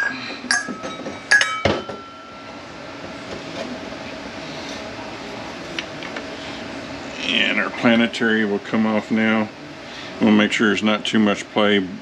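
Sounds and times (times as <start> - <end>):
steel parts clinking: 0.0 - 2.2.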